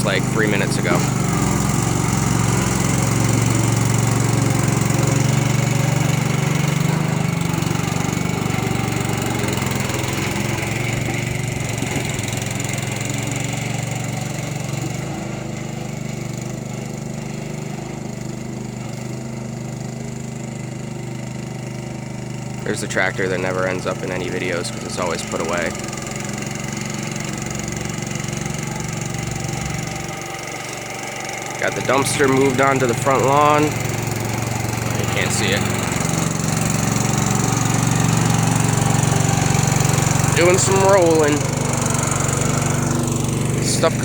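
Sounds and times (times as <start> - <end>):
roller engine running: 0.0 - 44.0.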